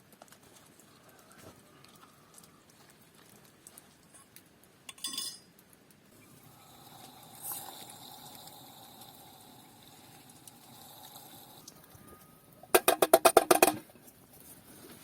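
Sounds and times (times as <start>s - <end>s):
metal utensils clinking: 4.9s - 5.5s.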